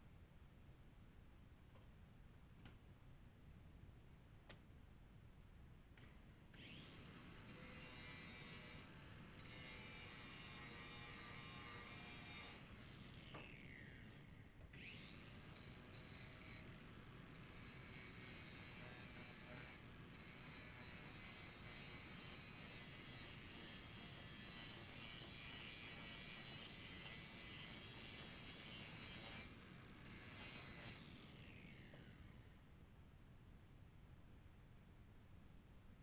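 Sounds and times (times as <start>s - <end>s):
electric grinder sharpening blade: 6.6s - 32.3s.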